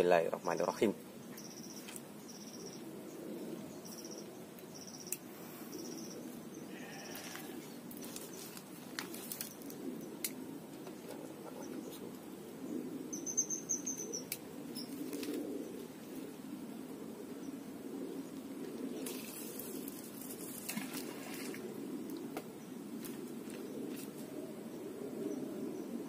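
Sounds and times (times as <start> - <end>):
bird calling with high notes: 13.1 - 15.0.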